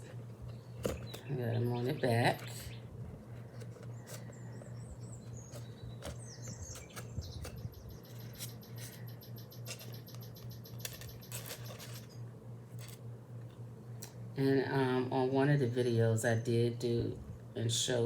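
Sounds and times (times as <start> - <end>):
steady low hum: 0.0 - 18.0
faint high bird chirps: 4.2 - 11.7
metal charms clicking and tapping: 9.6 - 12.2.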